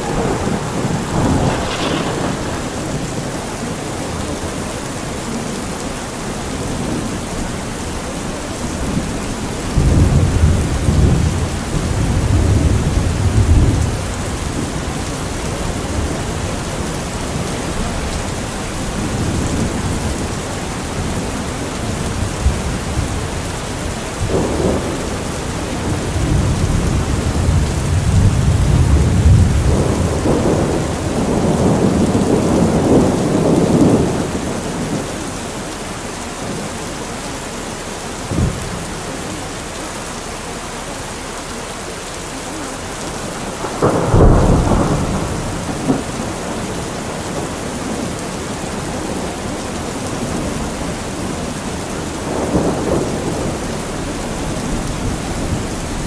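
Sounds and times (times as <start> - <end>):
rolling thunder: 0.0 - 36.8, 42.6 - 56.0
steady rain: 0.0 - 56.0.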